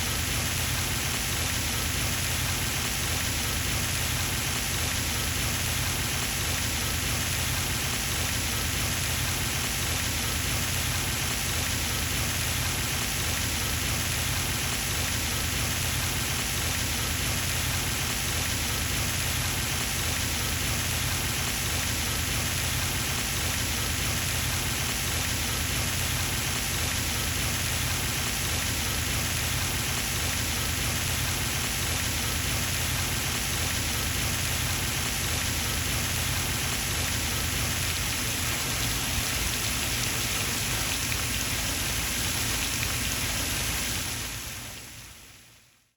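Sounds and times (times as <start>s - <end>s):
fountain splashing into pond: 0.0s - 45.4s.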